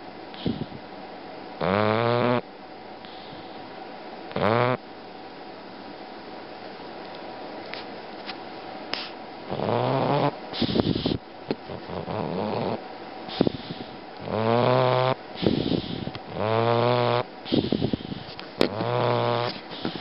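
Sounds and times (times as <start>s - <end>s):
dog breathy exhale: 0.4s - 0.8s, 10.5s - 11.2s, 13.3s - 14.0s, 15.4s - 16.2s, 17.4s - 18.4s, 19.5s - 20.0s
dog snoring: 1.6s - 2.4s, 4.3s - 4.8s, 9.5s - 20.0s.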